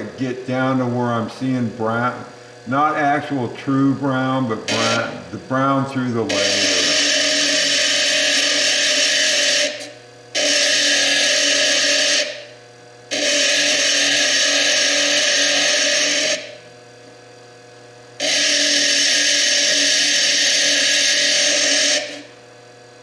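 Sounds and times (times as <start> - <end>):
motor whine: 0.0 - 8.6.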